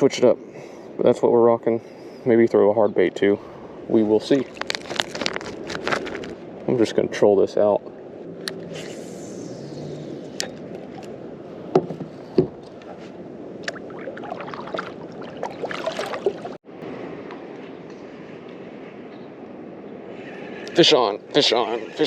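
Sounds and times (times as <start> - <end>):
water washing against hull: 13.6 - 16.6.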